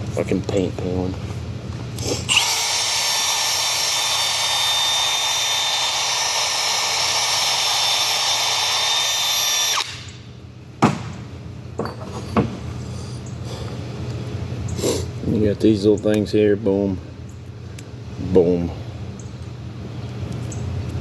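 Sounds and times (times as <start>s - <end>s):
power tool high-pitched whine: 2.0s - 10.3s.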